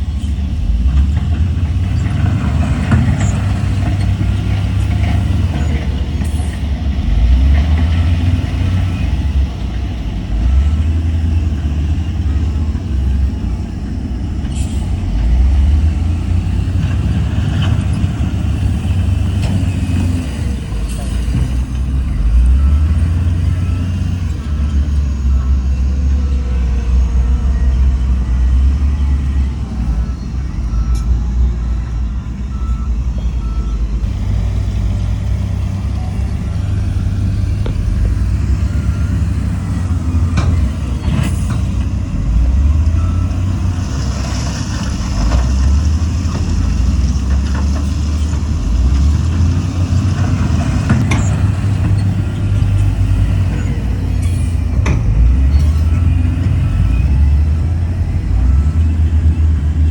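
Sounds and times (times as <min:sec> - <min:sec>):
heavy diesel engines under load: 0:00.0 - 0:59.9
faint reversing beeper: 0:14.5 - 0:46.1, 0:51.0 - 0:59.9.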